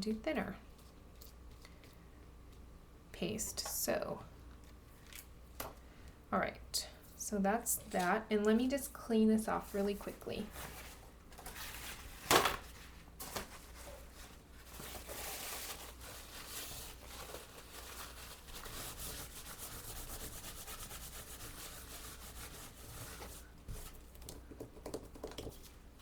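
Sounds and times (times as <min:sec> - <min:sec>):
scratchy rubbing on craft tool: 0:18.6 - 0:23.4.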